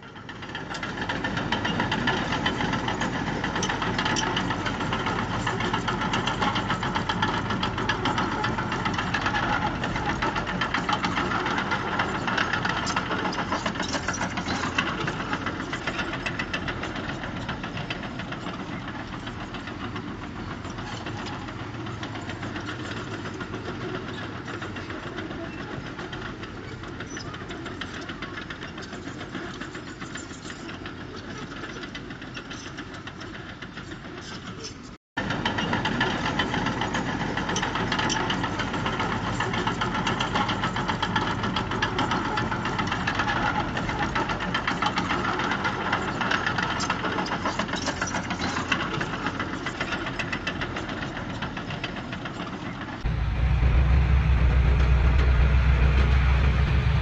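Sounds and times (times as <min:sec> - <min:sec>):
diesel engine knocking: 0:00.2 - 0:28.7, 0:48.2 - 0:57.0.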